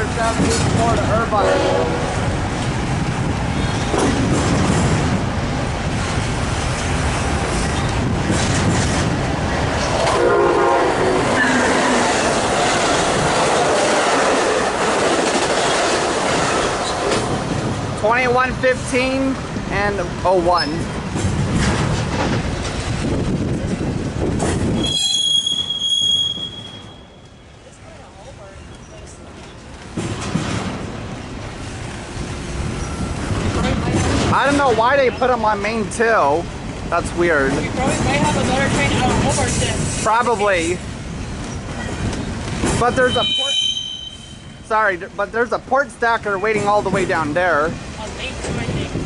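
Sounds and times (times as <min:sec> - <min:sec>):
train wheels clattering: 0:00.0 - 0:01.3, 0:03.5 - 0:10.3, 0:11.1 - 0:17.7, 0:20.5 - 0:27.4, 0:28.7 - 0:35.0, 0:41.2 - 0:44.5
train horn: 0:01.3 - 0:02.3, 0:10.1 - 0:12.0, 0:43.0 - 0:44.6
high wheel squeal: 0:24.8 - 0:27.5, 0:42.9 - 0:44.6.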